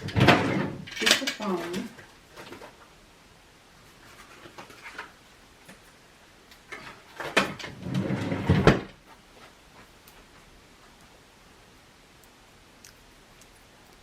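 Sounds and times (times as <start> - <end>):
rustling of craft supplies: 0.0 - 3.0, 3.7 - 11.3.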